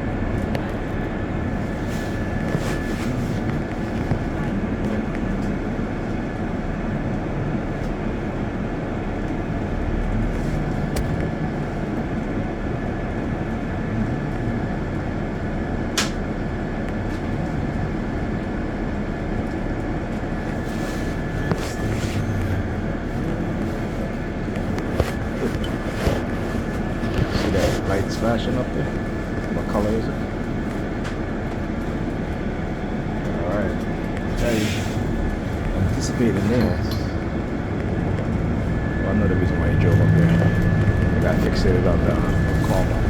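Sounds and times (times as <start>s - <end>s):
bus engine and road rumble: 0.0s - 43.0s
faint steady whine: 17.8s - 43.0s.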